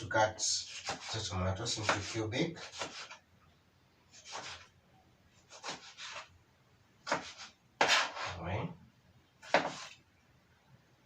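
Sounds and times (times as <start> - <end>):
knife slicing on cutting board: 0.7 - 1.2, 1.8 - 3.2, 4.2 - 4.7, 5.5 - 6.3, 7.1 - 8.4, 9.4 - 10.0.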